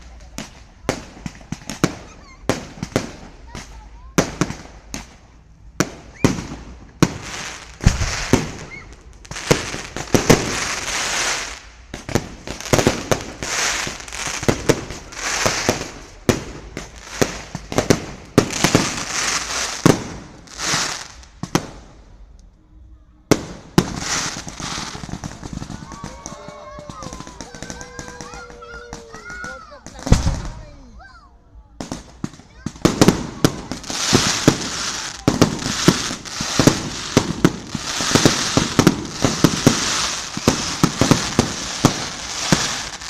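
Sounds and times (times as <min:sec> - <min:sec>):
fireworks bangs: 0:00.0 - 0:22.3, 0:23.2 - 0:30.9, 0:31.7 - 0:43.0
fireworks hissing crackle: 0:00.0 - 0:22.4, 0:23.3 - 0:30.9, 0:31.8 - 0:43.0.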